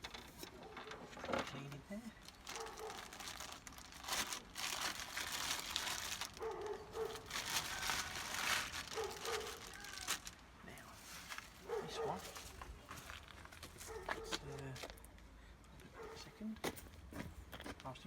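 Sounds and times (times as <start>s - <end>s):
material crinkling and rustling: 0.0s - 15.2s.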